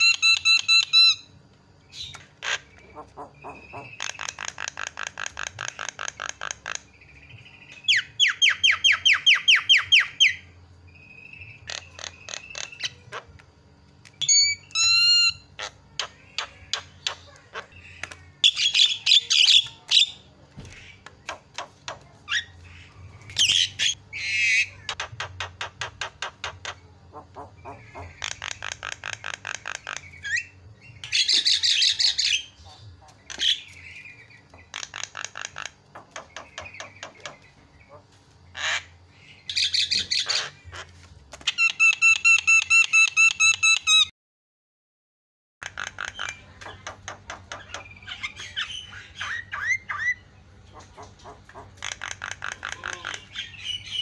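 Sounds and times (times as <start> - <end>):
myna calling: 1.9 - 6.8, 26.6 - 30.5, 45.6 - 54.0.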